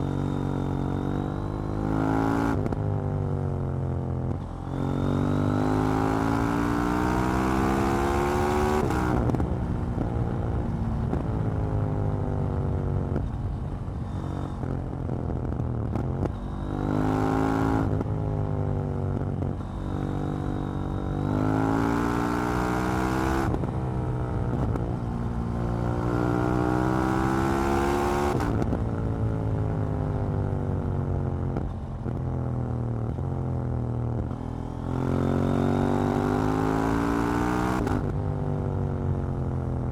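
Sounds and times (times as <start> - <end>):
motorcycle engine revving: 4.2 - 11.2, 34.2 - 38.3.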